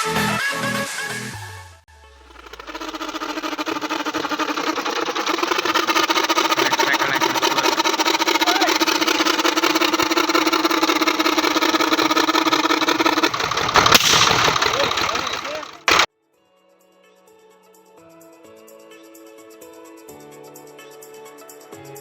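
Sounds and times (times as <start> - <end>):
tractor engine running: 2.2 - 16.1.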